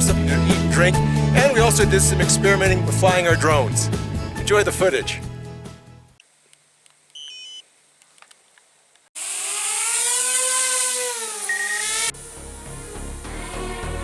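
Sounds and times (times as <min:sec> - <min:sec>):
short electronic beep: 0:07.2 - 0:07.6, 0:11.5 - 0:12.0
drone motors whining: 0:09.2 - 0:14.0.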